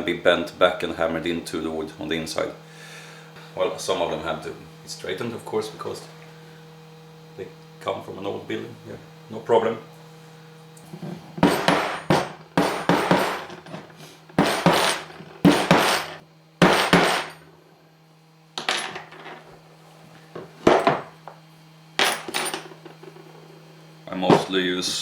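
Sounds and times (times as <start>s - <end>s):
hammer striking metal anvil: 11.4s - 13.6s, 14.4s - 17.4s.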